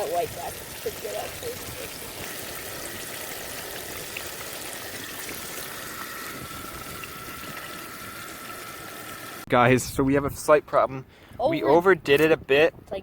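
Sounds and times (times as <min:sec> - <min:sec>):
fish sizzling in hot oil: 0:00.0 - 0:09.5.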